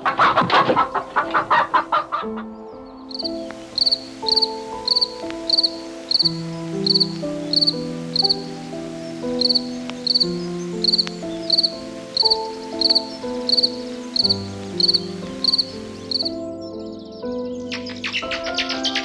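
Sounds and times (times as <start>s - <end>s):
chicken clucking: 0.0s - 2.5s
gentle melody of held notes: 0.8s - 19.0s
cricket chirps: 1.5s - 19.0s.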